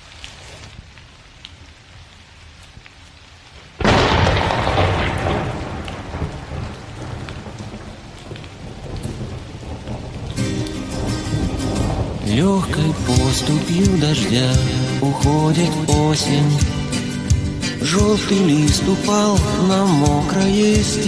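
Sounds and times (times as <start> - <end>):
steady rain: 0.0 - 21.0
thunderclap rolling into rumble: 3.8 - 14.6.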